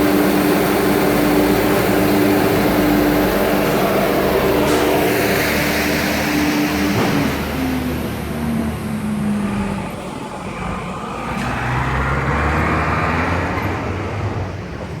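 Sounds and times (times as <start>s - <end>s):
exhaust fan air rush: 0.0s - 9.5s.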